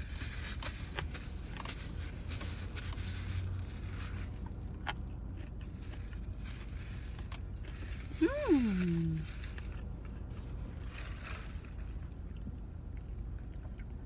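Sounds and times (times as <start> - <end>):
low hum in car cabin: 0.1 - 10.9
person chewing: 4.4 - 10.2.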